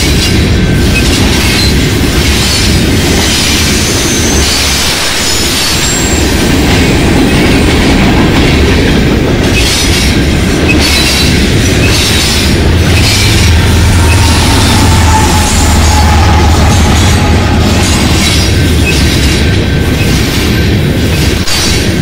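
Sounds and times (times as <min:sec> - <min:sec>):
diesel locomotive drone: 0:00.0 - 0:22.0
train wheels rumbling and clacking: 0:00.0 - 0:22.0
high wheel squeals: 0:10.7 - 0:20.2.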